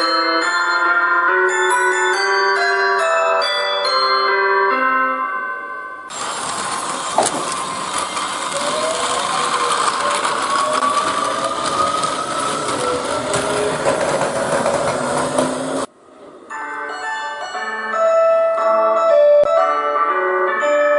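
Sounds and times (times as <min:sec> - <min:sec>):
train running gear rumble and rattle: 0:06.1 - 0:15.9
train traction motors whining: 0:06.1 - 0:16.4.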